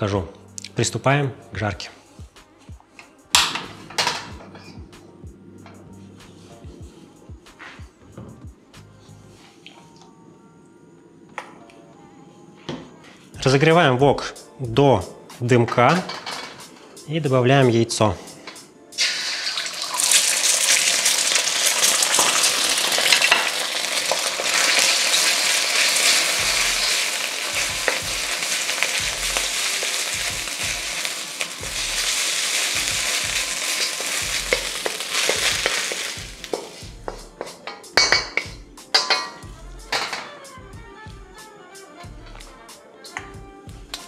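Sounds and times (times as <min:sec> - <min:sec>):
egg sizzling in a wok: 0:19.0 - 0:36.9.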